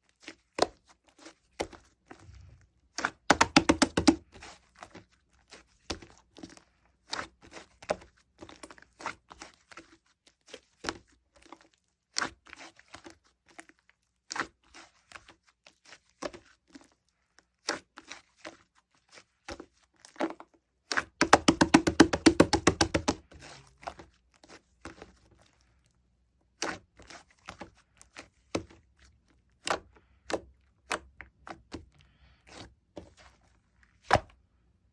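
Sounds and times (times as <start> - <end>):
rapid crackling pops of slime: 3.0 - 4.3, 21.0 - 23.3.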